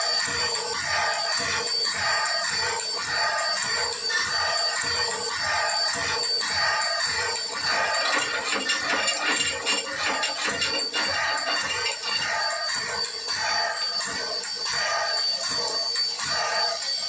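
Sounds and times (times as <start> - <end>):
model train engine sounds: 3.2 - 17.0
model train bells ringing: 7.6 - 12.7
thin high whine: 7.6 - 13.2.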